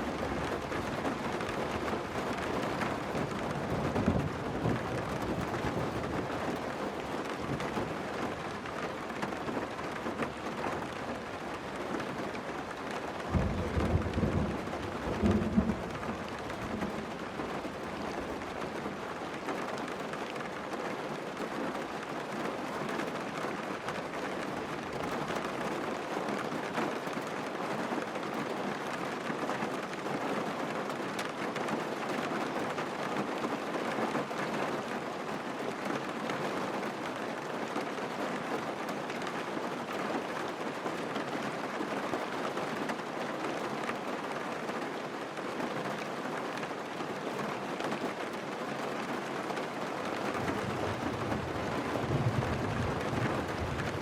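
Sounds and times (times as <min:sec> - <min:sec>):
heavy rain on car roof: 0:00.0 - 0:54.0.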